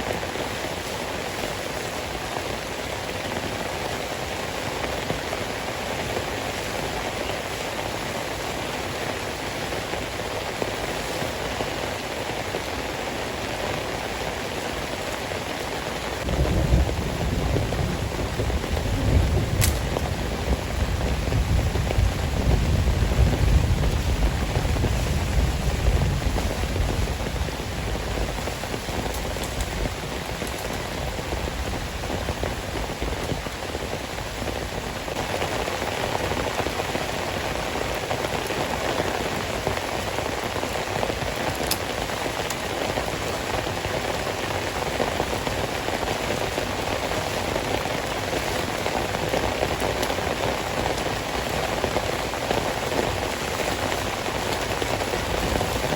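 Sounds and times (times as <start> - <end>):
heavy rain falling: 0.0 - 55.9
thunder rumbling: 16.1 - 41.6, 49.0 - 55.9.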